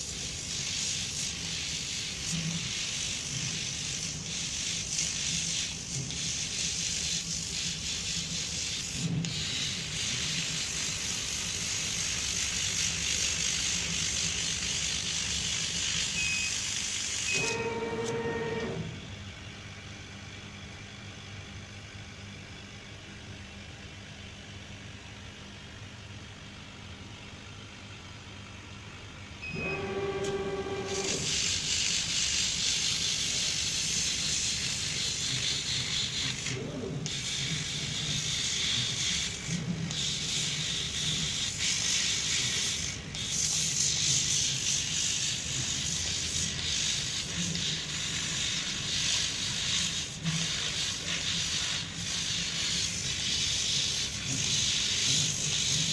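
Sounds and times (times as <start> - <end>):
engraving machine hissing: 0.0 - 19.0, 29.6 - 55.9
brief pitched whine: 17.3 - 19.1, 29.4 - 31.3.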